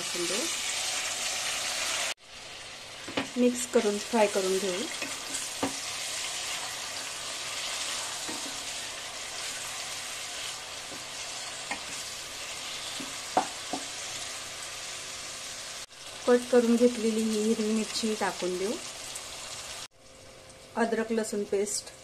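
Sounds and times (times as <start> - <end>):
tomatoes sizzling in oil: 0.0 - 22.0
wooden spatula knocking pan: 8.2 - 8.6, 13.0 - 13.9.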